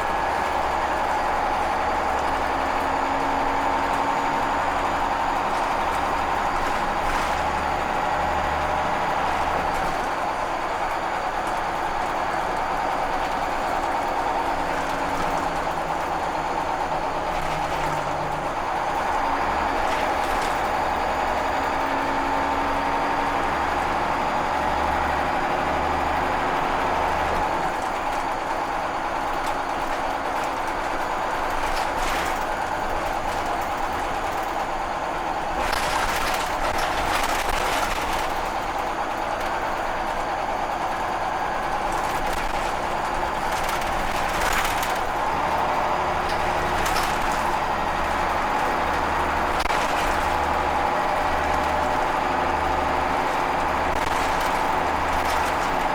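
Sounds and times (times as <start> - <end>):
bus body rattling: 0.0 - 55.9
bus engine and road noise: 0.0 - 55.9.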